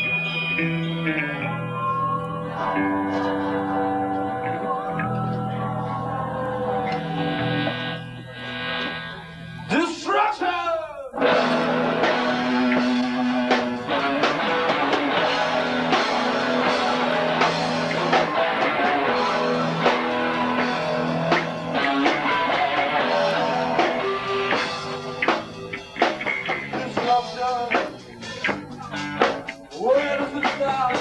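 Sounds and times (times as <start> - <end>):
bass guitar: 0.0 - 9.8, 11.2 - 31.0
electric guitar: 0.0 - 9.8, 11.1 - 31.0
drum kit: 11.2 - 31.0.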